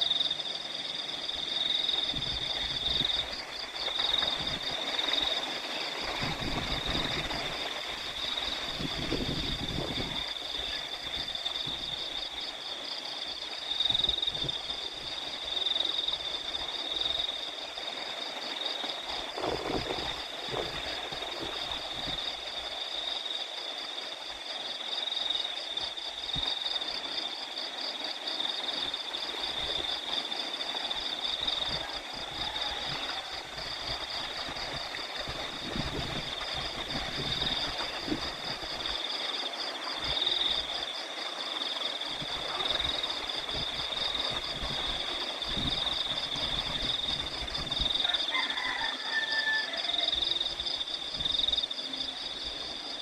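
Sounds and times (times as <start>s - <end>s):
crickets chirping: 0.0s - 53.0s
wind rumble on microphone: 1.6s - 12.6s, 13.8s - 17.3s, 19.0s - 22.9s, 29.3s - 39.0s, 42.0s - 52.9s.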